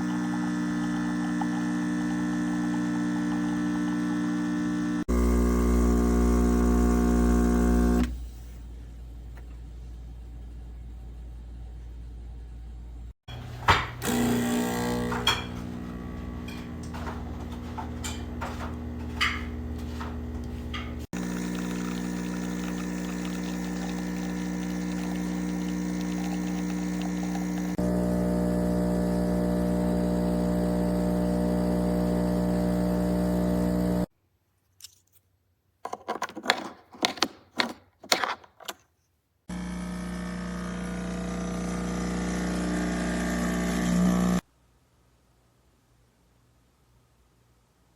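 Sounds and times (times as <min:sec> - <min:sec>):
espresso machine pump humming: 0:00.0 - 0:08.2, 0:14.0 - 0:34.1, 0:39.5 - 0:44.4.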